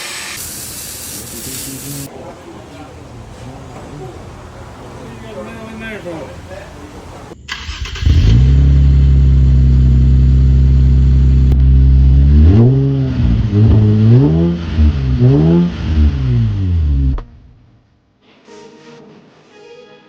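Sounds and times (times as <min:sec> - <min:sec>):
car engine idling and revving: 0:06.9 - 0:17.5.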